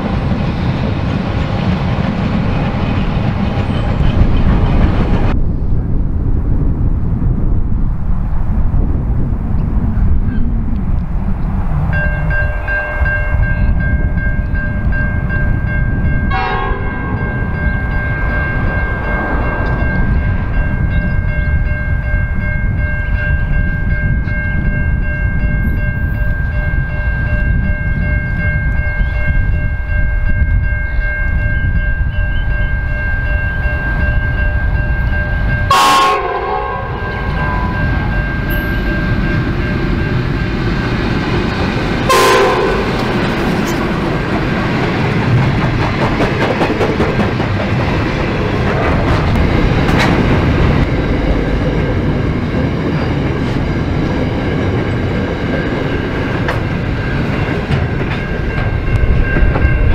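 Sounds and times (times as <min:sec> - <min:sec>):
freight train rumbling by: 0:00.0 - 0:59.9
steady high-pitched tone: 0:12.0 - 0:24.0, 0:36.8 - 0:43.0.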